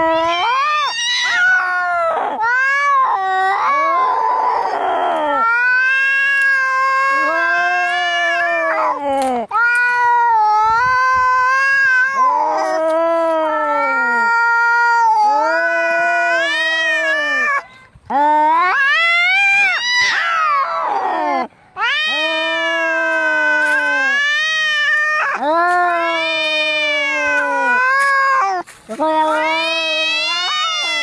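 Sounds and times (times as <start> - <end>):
cats yowling: 0.0 - 31.0.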